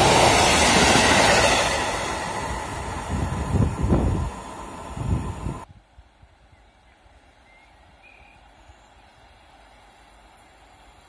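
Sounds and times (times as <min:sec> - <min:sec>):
freight train rolling: 0:00.0 - 0:05.7
wind buffeting microphone: 0:00.0 - 0:05.8.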